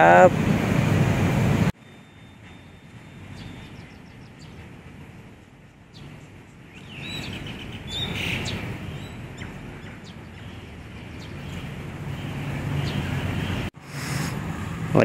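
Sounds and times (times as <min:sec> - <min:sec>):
small birds chirping: 0:03.2 - 0:14.4.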